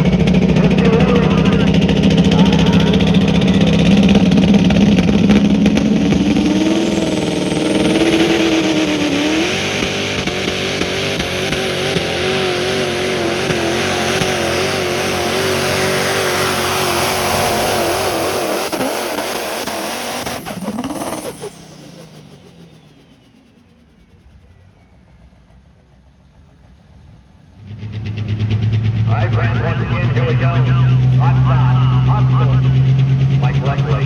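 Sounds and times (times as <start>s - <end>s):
truck engine at high revs: 0.0s - 34.0s.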